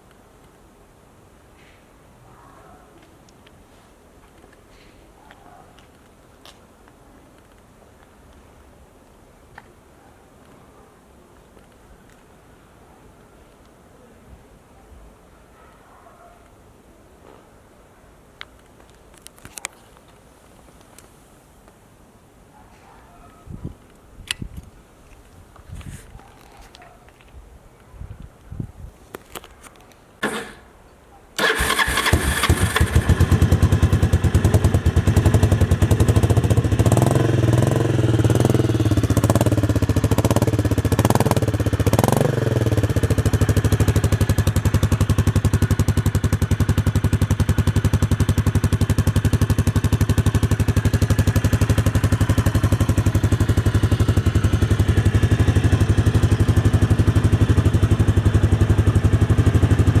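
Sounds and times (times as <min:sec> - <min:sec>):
motorcycle engine starting and revving: 0:30.2 - 0:30.7, 0:31.4 - 1:00.0.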